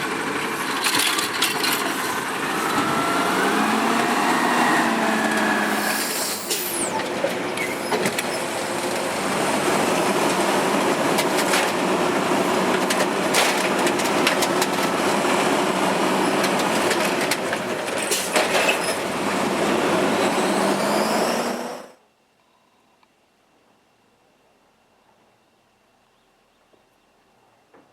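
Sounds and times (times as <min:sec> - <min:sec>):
garbage truck engine and hydraulics: 0:00.0 - 0:22.0.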